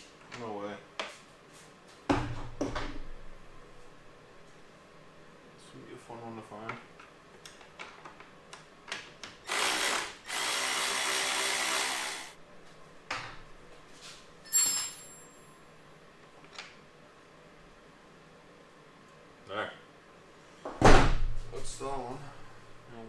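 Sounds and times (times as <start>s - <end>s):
power drill spinning: 9.4s - 12.4s
sharp metallic clink ringing: 14.5s - 15.6s.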